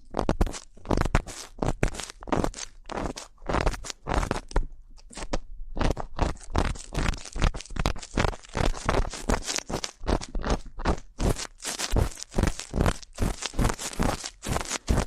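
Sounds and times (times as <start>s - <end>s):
ear pick scraping: 0.0s - 15.0s.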